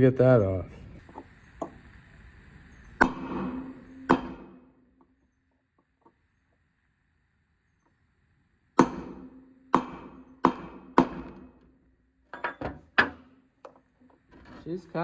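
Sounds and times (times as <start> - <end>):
hammer striking metal: 3.0 - 4.8, 8.8 - 11.6.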